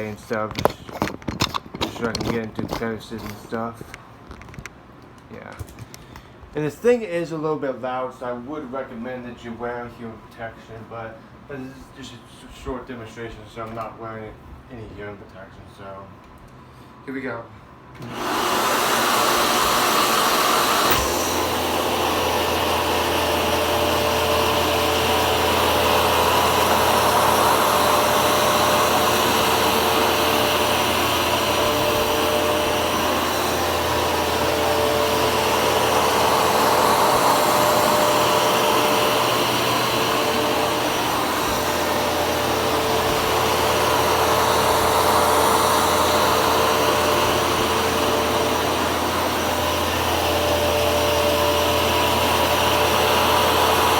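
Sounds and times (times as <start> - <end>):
carpet shampooer motor whining: 18.0 - 53.9.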